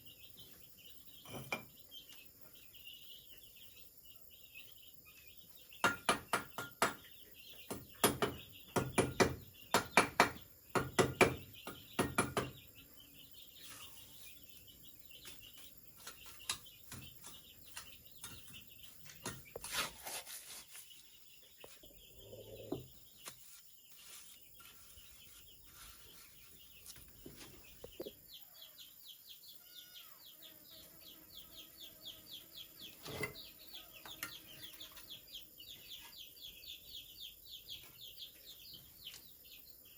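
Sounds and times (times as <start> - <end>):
birds chirping: 0.0 - 39.9
sharp knocks: 5.8 - 7.1, 7.7 - 12.6.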